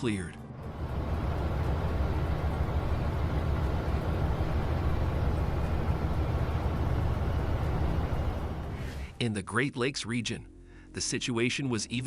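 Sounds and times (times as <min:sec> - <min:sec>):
heavy vehicle engine running: 0:00.6 - 0:09.1.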